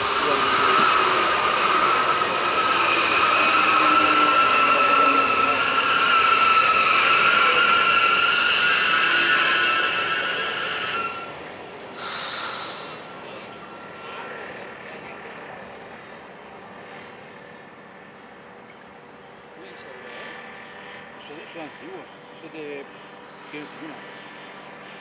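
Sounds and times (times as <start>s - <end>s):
loud air hiss: 0.0s - 13.8s, 23.2s - 24.2s
train wheels squealing: 0.0s - 19.1s
faint train rumble: 0.0s - 25.0s.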